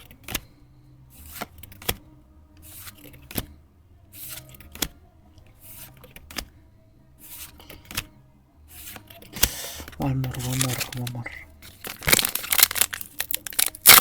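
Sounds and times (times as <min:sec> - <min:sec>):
cards brushing off stack: 0:08.8 - 0:14.0
card landing with a snap: 0:09.4 - 0:09.7.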